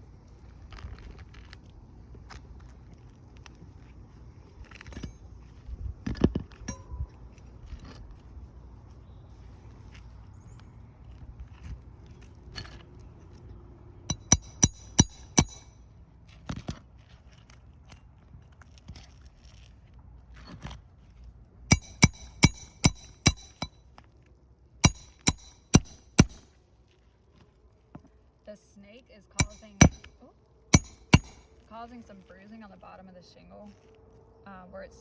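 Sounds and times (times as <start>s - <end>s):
hammer striking roofing nails: 14.1s - 15.7s, 21.7s - 23.8s, 24.8s - 26.5s, 29.4s - 30.2s, 30.8s - 31.5s.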